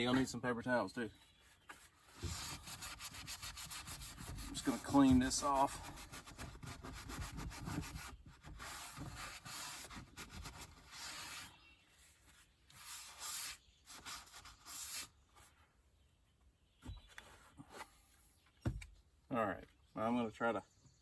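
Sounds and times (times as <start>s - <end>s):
paper towel rubbing a door panel: 1.7s - 11.6s, 12.8s - 15.1s.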